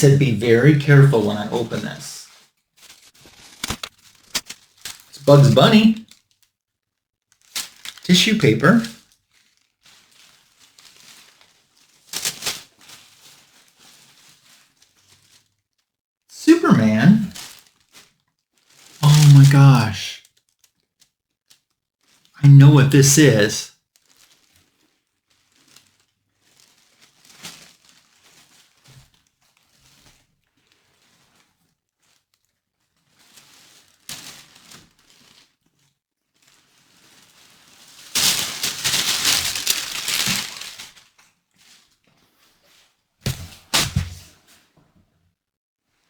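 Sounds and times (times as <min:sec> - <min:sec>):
tissue paper rustling: 0:00.0 - 0:06.4, 0:07.3 - 0:15.9, 0:16.8 - 0:20.7, 0:23.2 - 0:44.7
short sharp paper crackles: 0:00.1 - 0:06.4, 0:07.3 - 0:08.1, 0:08.7 - 0:15.6, 0:33.0 - 0:35.8, 0:36.4 - 0:42.0, 0:43.2 - 0:44.6.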